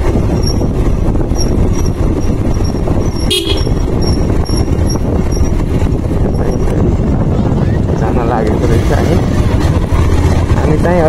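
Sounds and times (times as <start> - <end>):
vehicle rumbling: 0.0 - 11.0
short horn toot: 3.3 - 3.8.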